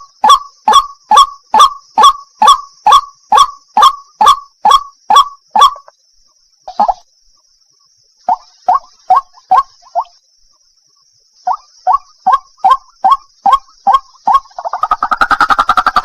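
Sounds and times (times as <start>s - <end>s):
waterhen calling: 8.3s - 10.2s, 11.5s - 16.0s.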